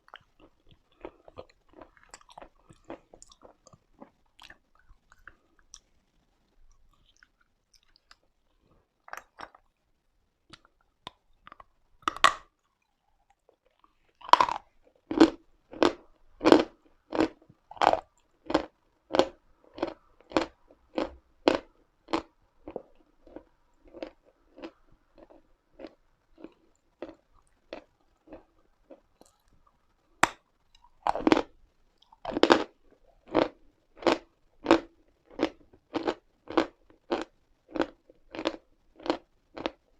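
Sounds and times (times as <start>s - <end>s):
chalk crunching being chewed: 0.0s - 6.0s, 6.7s - 9.7s, 30.7s - 39.8s.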